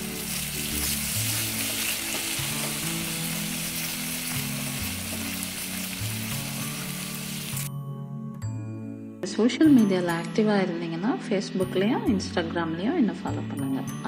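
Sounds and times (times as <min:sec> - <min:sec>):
ghee sizzling in a pan: 0:00.0 - 0:07.7.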